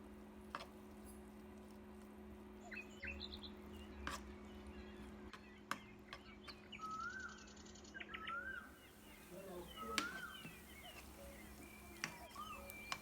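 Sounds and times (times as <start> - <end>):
small birds chirping: 2.5 - 13.0.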